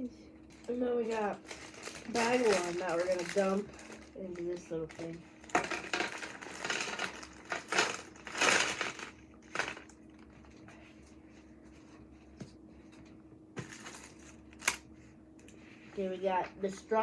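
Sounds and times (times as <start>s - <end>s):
plastic pieces clattering into container: 1.1s - 10.0s.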